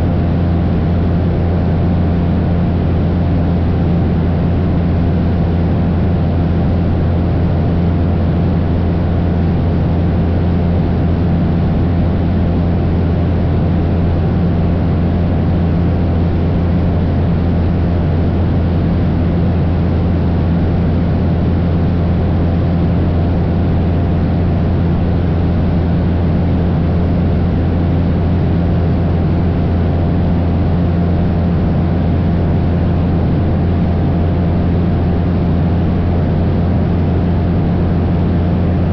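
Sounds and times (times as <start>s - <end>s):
propeller plane engine drone: 0.0s - 38.9s.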